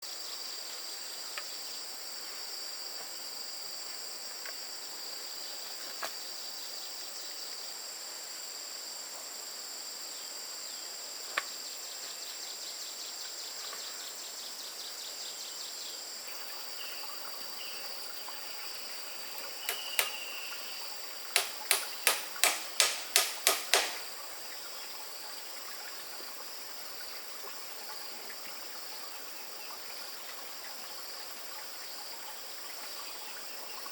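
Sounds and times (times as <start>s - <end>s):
insects droning: 0.0s - 33.9s
sharp loud clicks: 19.6s - 20.6s, 21.4s - 24.2s.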